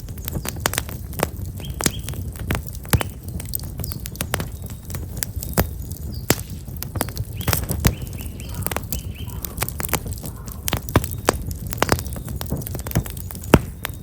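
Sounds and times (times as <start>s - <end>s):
campfire crackling and popping: 0.0s - 14.0s
small bird chirping: 1.6s - 14.0s.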